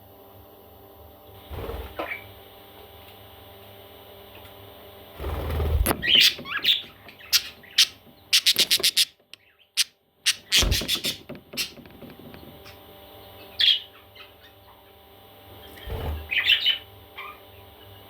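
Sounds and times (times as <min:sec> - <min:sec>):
background hum: 0:00.0 - 0:18.0
parrot chicks squeaking: 0:06.0 - 0:11.8
sharp scratchy clicks: 0:07.8 - 0:11.8.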